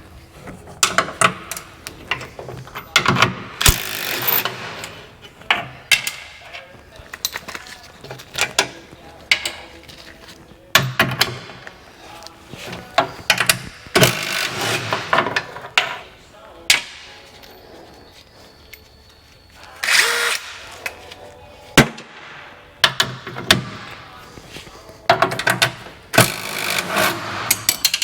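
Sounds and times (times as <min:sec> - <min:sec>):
scraping and rustling: 0:00.0 - 0:03.0, 0:06.2 - 0:21.8, 0:23.2 - 0:28.0
metal clanks and knocks: 0:12.6 - 0:17.1.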